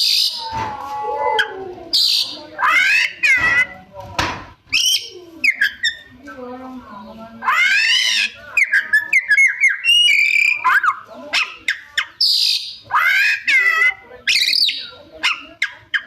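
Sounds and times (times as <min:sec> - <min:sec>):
songbird singing varied whistles: 0:07.9 - 0:10.9.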